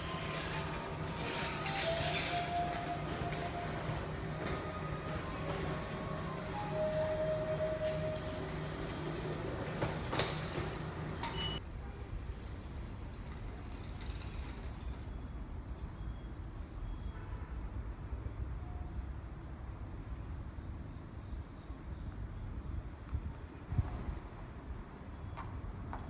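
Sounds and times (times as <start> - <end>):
pitched steady notes: 0.0 - 10.1.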